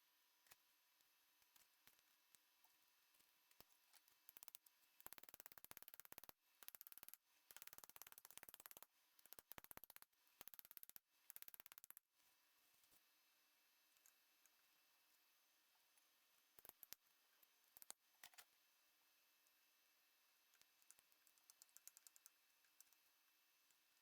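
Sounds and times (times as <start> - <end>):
rapid mechanical clicking: 4.3 - 12.0.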